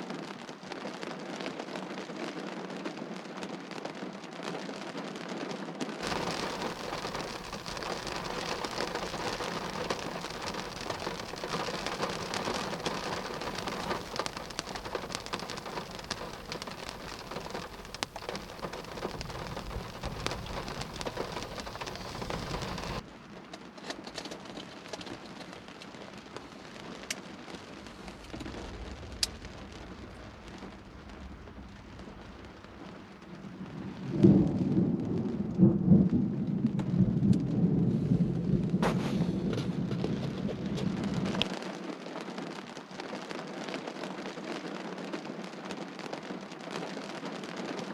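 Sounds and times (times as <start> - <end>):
heavy rain falling: 0.0 - 5.4, 6.0 - 47.9
thunder rumble: 6.0 - 23.0, 27.6 - 41.5
sharp raindrop ticks: 6.0 - 32.9.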